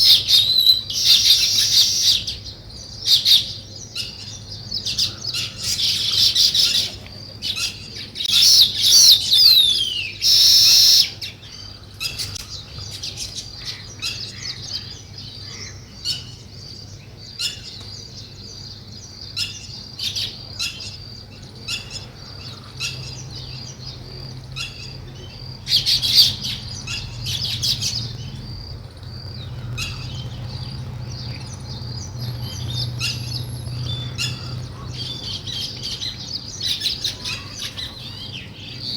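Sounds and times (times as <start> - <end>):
falling bird whistles: 0.0 - 2.3, 8.3 - 11.2
birds chirping and chattering: 0.0 - 38.9.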